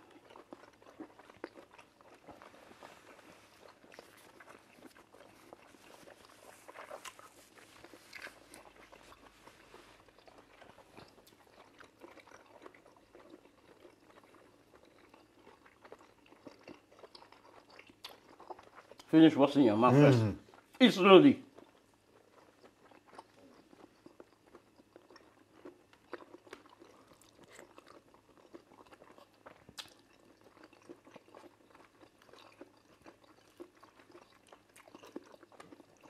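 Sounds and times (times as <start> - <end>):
wet chewing: 0.0 - 20.8, 21.5 - 36.0.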